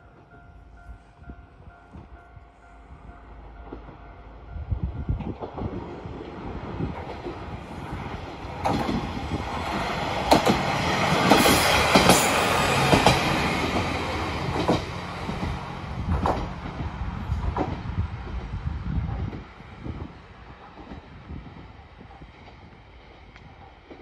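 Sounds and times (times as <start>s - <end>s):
wheels clicking over rail joints: 8.5s - 17.9s.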